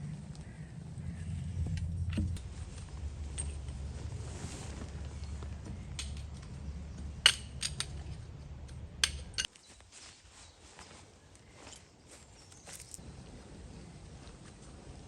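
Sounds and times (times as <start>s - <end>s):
low rumble: 0.0s - 9.5s.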